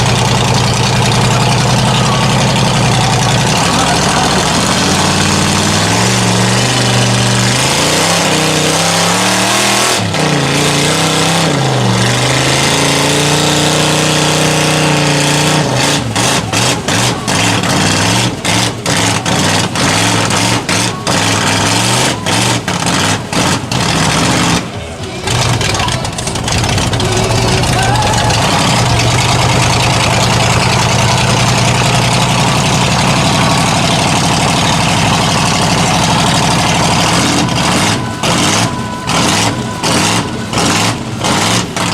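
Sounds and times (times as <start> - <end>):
truck engine revving: 0.0 - 41.9.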